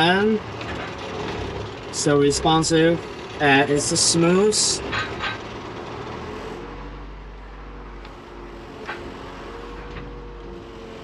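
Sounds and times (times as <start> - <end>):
excavator diesel engine running: 0.0 - 11.0
hydraulic whine: 0.0 - 11.0.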